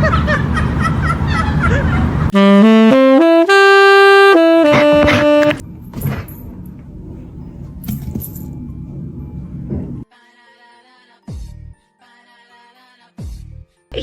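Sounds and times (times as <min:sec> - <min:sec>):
comic wind instrument melody: 0:02.3 - 0:05.6.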